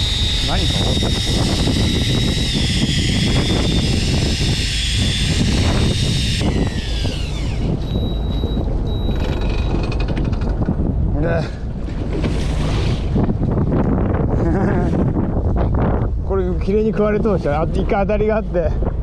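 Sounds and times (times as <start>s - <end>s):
high whine sliding down: 0.0s - 10.0s
boat engine running: 0.0s - 19.0s
wind and water noise: 0.0s - 19.0s.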